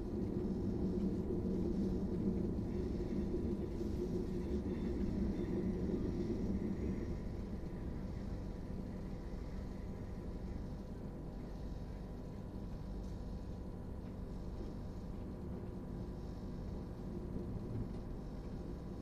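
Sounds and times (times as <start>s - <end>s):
faint steady whine: 0.0s - 19.0s.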